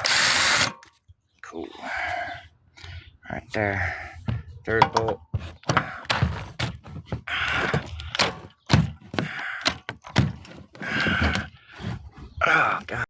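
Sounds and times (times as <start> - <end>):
cordless drill running: 0.0 - 0.7
clunks and knocks on bolt: 4.3 - 7.2.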